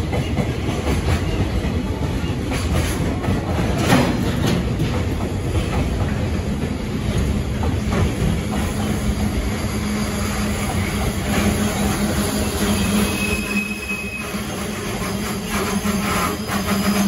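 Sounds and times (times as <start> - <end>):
wheels clacking over rail joints: 0.0 - 13.2
train wheels rumbling on rail: 0.0 - 17.0.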